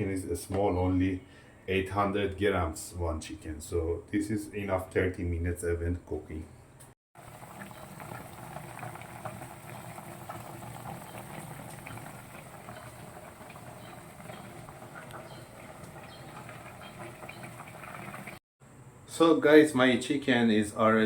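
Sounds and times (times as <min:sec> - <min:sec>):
pot of broth bubbling: 0:07.2 - 0:18.4.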